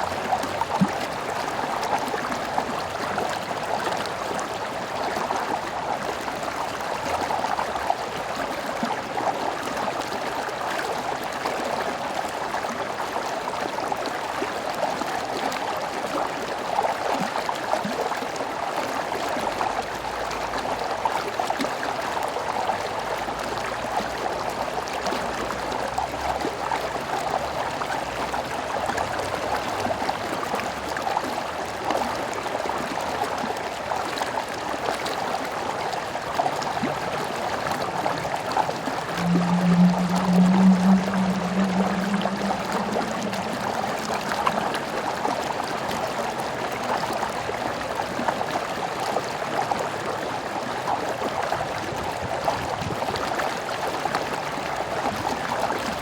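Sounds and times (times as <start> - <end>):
stream water flowing: 0.0 - 56.0
faint low rumble: 37.2 - 46.4.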